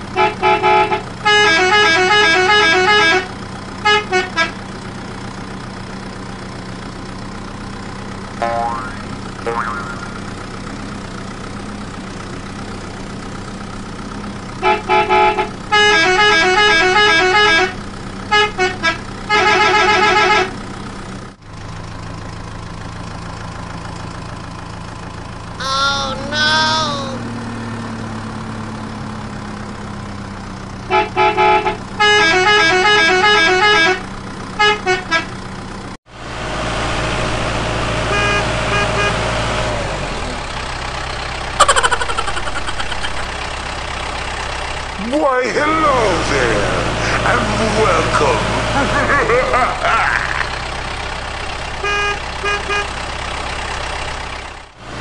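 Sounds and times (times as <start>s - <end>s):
vehicle engine running: 0.0s - 55.0s
horn honking beeps: 0.1s - 4.6s, 8.4s - 10.4s, 14.6s - 20.6s, 25.6s - 27.3s, 30.9s - 35.4s, 38.1s - 39.3s, 51.8s - 53.0s.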